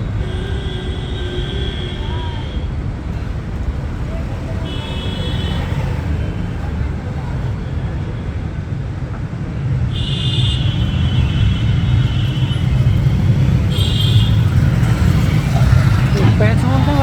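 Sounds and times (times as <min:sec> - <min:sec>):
low rumble of traffic: 0:00.0 - 0:17.0.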